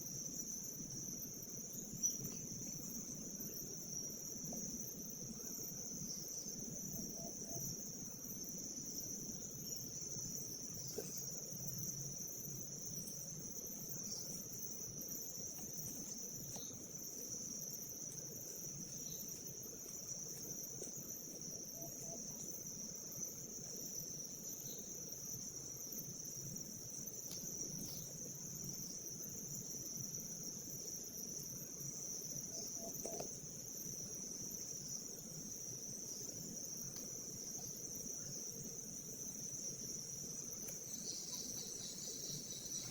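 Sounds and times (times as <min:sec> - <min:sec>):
insects shrilling: 0:09.6 - 0:42.9.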